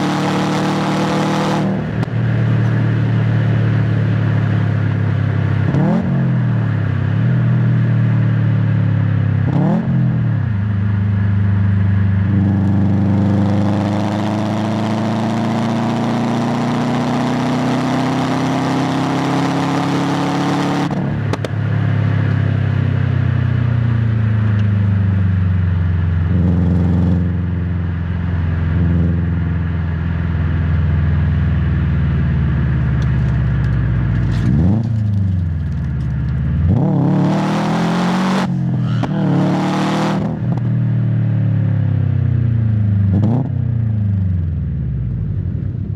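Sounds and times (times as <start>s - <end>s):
turbocharged car engine revving: 0.0s - 6.8s, 12.2s - 21.5s, 31.1s - 40.7s.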